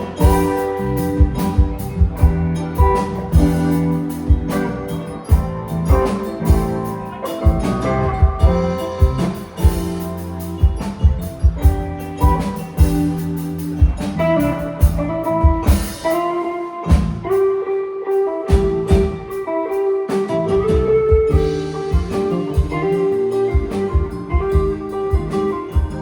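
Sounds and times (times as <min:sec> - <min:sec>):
live band playing instrumental: 0:00.0 - 0:26.0.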